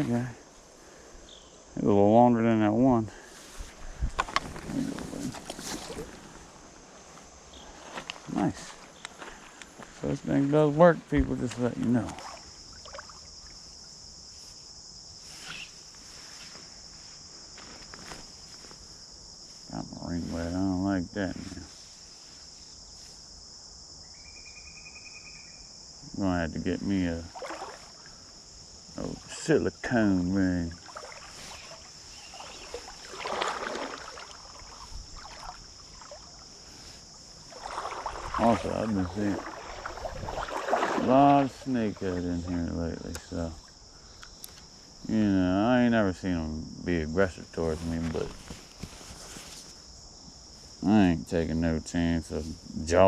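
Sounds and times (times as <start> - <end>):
insects trilling: 0.0 - 53.0
creek water sloshing: 3.2 - 14.0, 27.2 - 29.5, 30.5 - 43.9.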